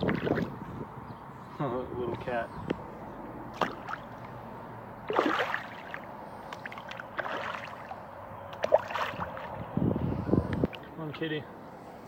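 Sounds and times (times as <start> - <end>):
splashes in water: 0.0 - 0.6, 3.5 - 4.4, 5.0 - 9.7.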